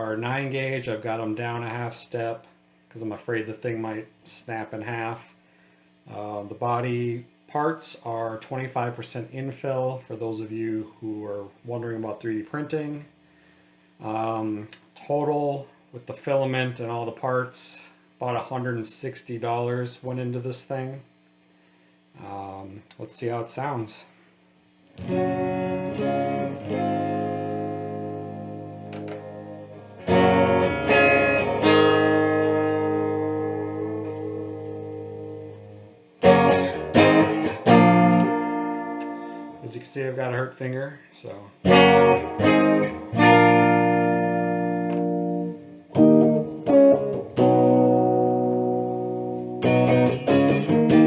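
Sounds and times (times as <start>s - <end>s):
electric guitar chords ringing: 24.9s - 39.9s, 41.6s - 51.0s.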